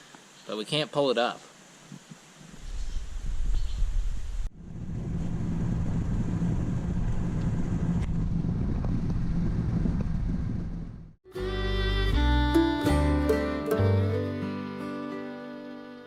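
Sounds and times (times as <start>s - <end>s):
wind noise: 1.9s - 11.2s
vehicle engine and road rumble: 4.2s - 11.2s.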